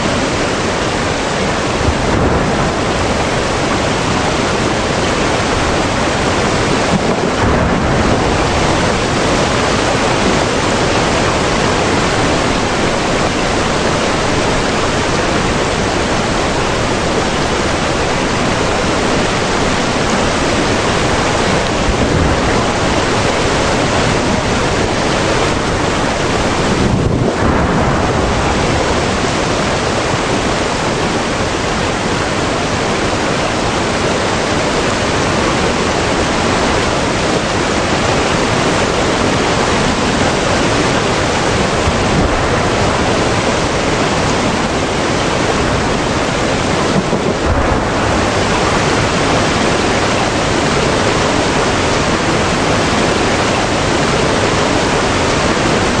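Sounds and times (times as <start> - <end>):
dense rushing noise: 12.1 - 29.4.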